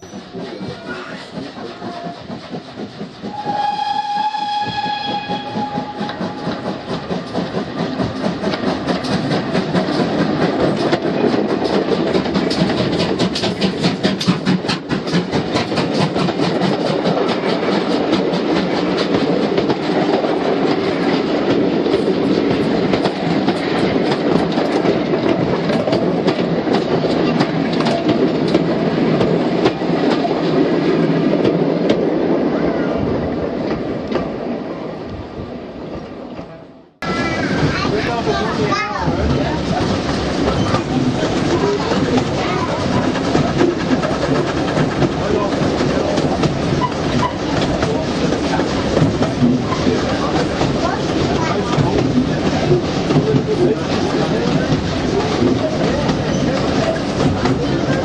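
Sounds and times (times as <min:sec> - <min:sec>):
wheels clicking over rail joints: 0:00.0 - 0:32.1
train running noise: 0:00.0 - 0:58.0
train horn long note: 0:03.3 - 0:06.4.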